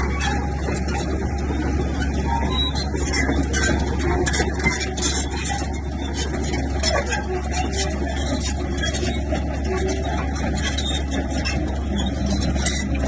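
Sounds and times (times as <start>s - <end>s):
clicking and clatter: 0.0s - 13.0s
diesel machinery droning: 0.0s - 13.0s.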